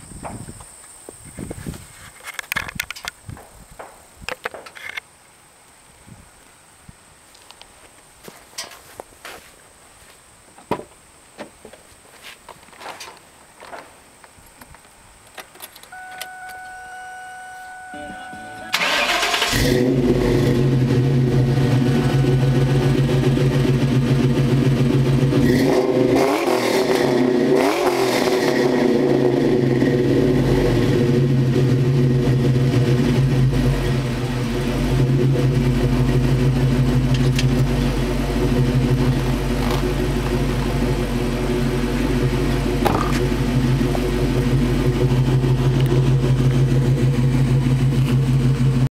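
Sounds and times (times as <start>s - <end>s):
throttle blips: 15.9s - 19.1s
car engine idling: 15.9s - 26.4s, 28.8s - 48.9s.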